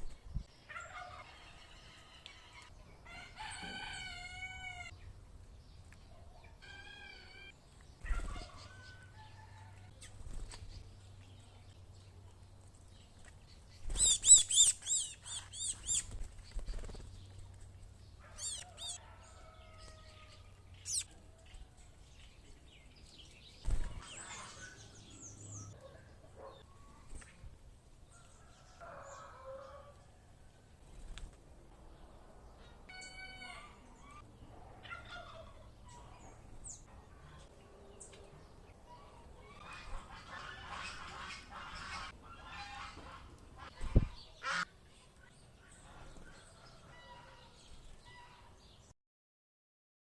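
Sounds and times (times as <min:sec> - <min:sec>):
birds calling and whistling: 0:05.8 - 0:12.1, 0:13.0 - 0:27.5
wings flapping: 0:13.8 - 0:17.7, 0:23.6 - 0:24.3
quick high bird chirps: 0:13.9 - 0:16.2.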